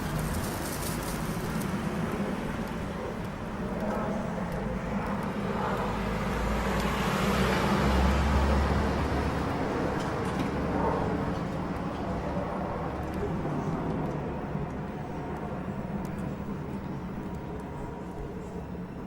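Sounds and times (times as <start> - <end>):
traffic noise: 0.0 - 19.0.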